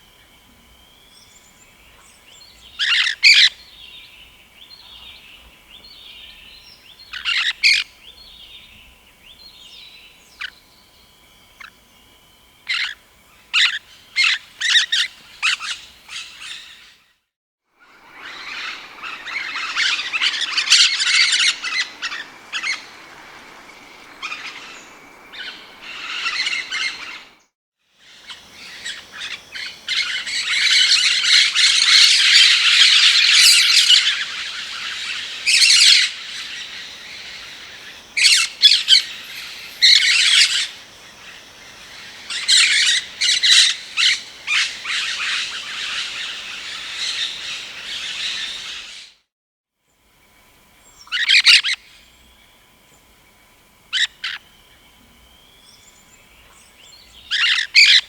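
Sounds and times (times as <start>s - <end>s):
parakeet squawking and chirping: 38.2s - 40.7s, 42.3s - 46.0s.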